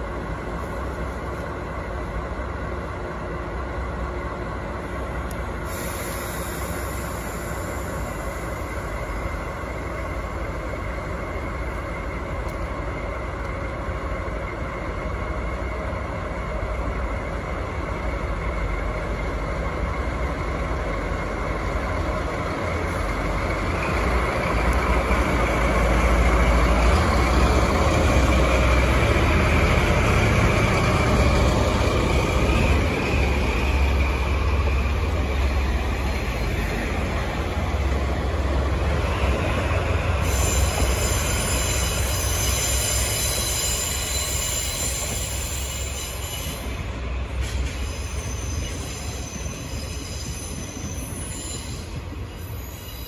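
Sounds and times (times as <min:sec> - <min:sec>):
train engine and wheel rumble: 0:00.0 - 0:53.0
high wheel squeal: 0:39.0 - 0:53.0.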